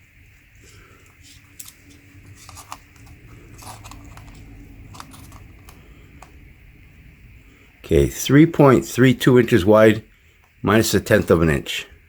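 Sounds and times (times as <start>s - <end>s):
low hum: 0.0s - 11.3s
metallic clicks and scraping: 1.3s - 6.4s.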